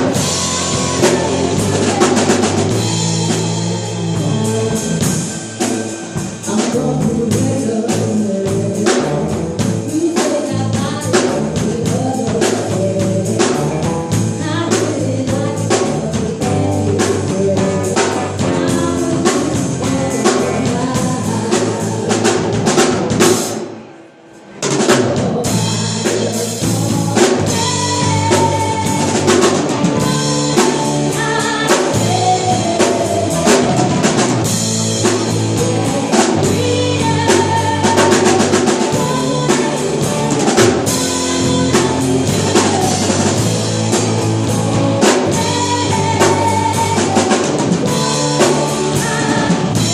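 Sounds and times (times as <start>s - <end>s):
person singing: 0.0s - 23.4s, 24.9s - 49.9s
drum kit beat: 0.0s - 23.7s, 24.6s - 49.9s
live band playing pop: 0.0s - 49.9s.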